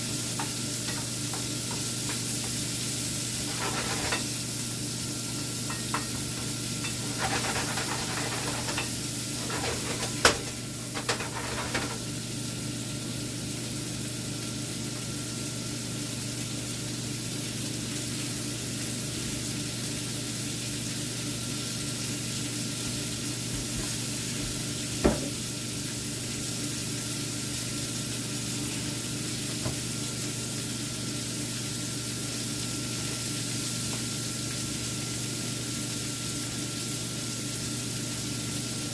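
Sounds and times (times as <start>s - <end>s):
shrimp sizzling in a pan: 0.0s - 38.9s
stirring clatter: 0.4s - 2.7s, 3.3s - 4.5s, 5.2s - 12.1s
utensil knocking against pan: 5.7s - 12.0s.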